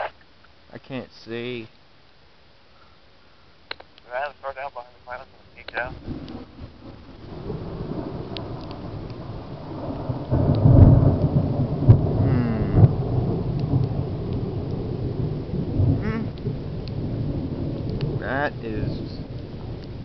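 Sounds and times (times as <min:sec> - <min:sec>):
rain falling: 0:00.0 - 0:20.0
loud close thunder: 0:05.8 - 0:20.0.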